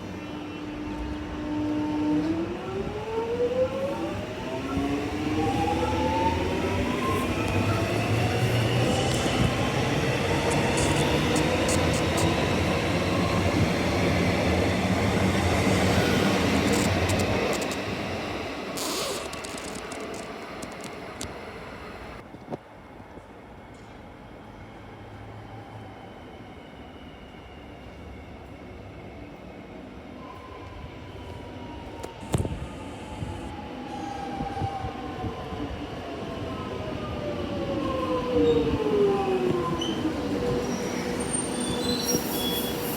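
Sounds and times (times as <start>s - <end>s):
electric train passing: 2.4s - 22.2s
sharp clicks: 10.4s - 12.4s, 16.5s - 17.9s.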